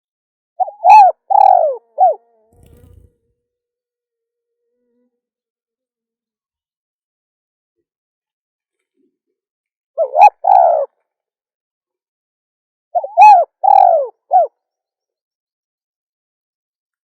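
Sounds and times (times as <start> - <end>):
dove cooing: 0.6 - 3.2, 10.0 - 10.9, 13.0 - 14.5.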